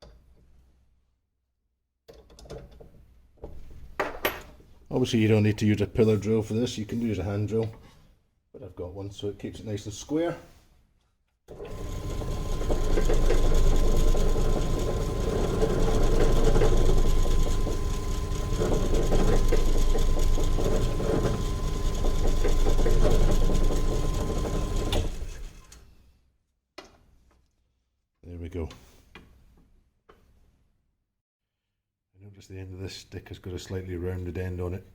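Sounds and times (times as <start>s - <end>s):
pillar drill drilling wood: 11.5s - 25.7s.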